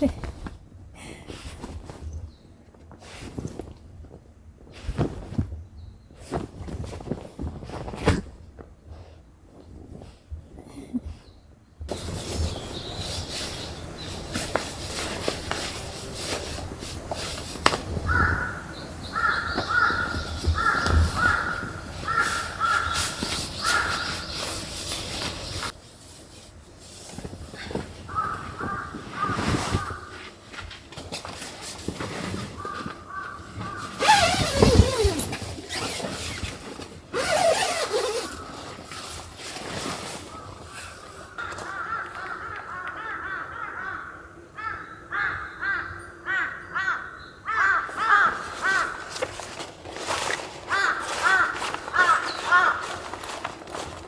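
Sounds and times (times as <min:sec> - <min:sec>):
crows cawing: 0:18.0 - 0:24.3, 0:28.1 - 0:30.2, 0:32.6 - 0:34.0, 0:41.1 - 0:49.2, 0:50.7 - 0:53.2.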